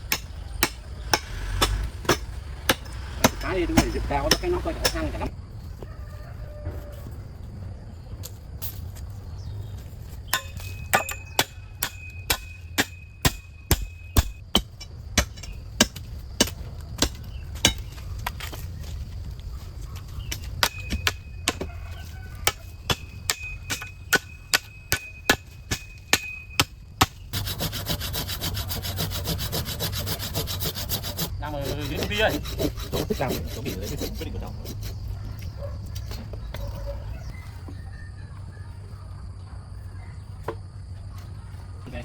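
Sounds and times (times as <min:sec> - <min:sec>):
saw cutting wood: 0:00.0 - 0:05.3, 0:27.0 - 0:35.2.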